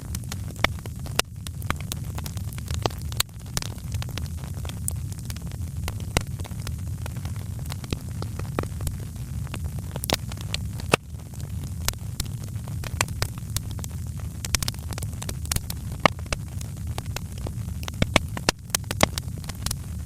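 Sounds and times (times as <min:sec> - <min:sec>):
low rumble of flames: 0:00.0 - 0:20.0
wood fire crackling: 0:00.0 - 0:20.0
sharp pops and snaps: 0:17.8 - 0:19.8.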